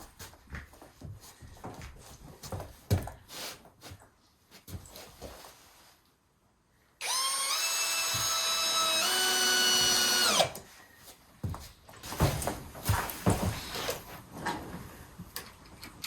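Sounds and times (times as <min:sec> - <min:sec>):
power drill motor whine: 0:07.0 - 0:10.6.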